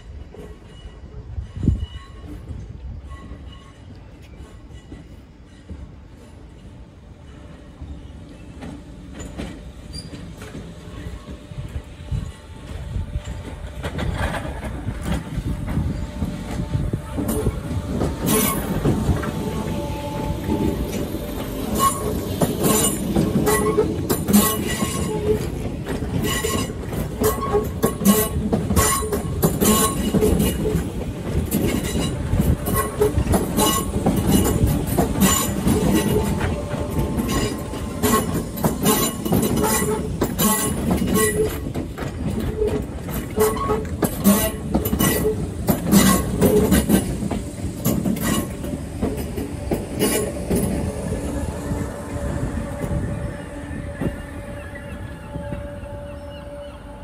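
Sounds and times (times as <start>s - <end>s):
train rumble: 0.0s - 57.0s
faint wheel squeals: 9.2s - 11.4s.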